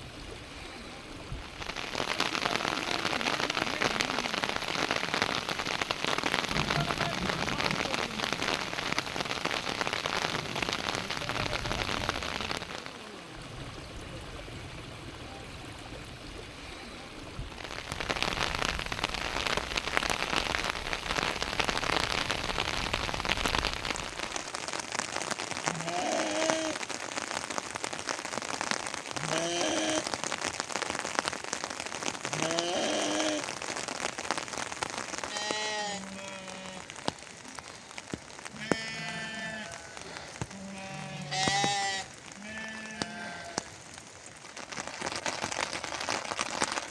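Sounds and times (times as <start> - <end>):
rain falling: 0.0 - 46.9
short animal calls: 29.2 - 30.1, 35.2 - 36.9, 38.5 - 43.7.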